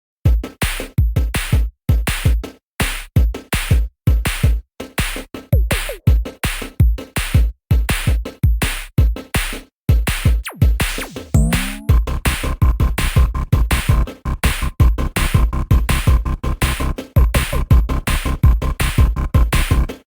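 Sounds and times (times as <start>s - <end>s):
electronic dance music: 10.3s - 20.0s.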